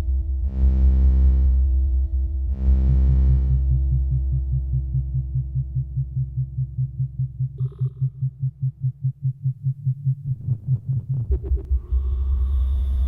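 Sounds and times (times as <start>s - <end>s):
throbbing synth bass tone: 0.0s - 13.0s
low drone: 11.6s - 13.0s.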